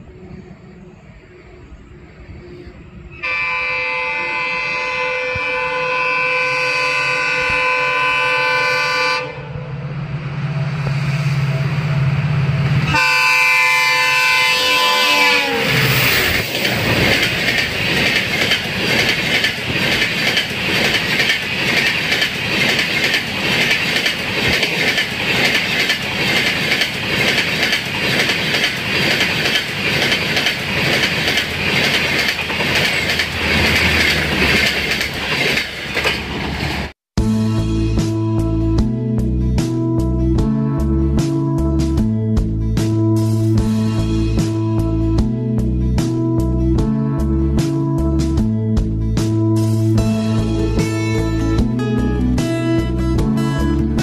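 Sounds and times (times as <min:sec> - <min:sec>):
diesel locomotive engine drone: 0:00.0 - 0:54.0
train horn: 0:02.4 - 0:09.9, 0:12.8 - 0:16.4
wheels clickety-clack on rails: 0:15.7 - 0:37.0.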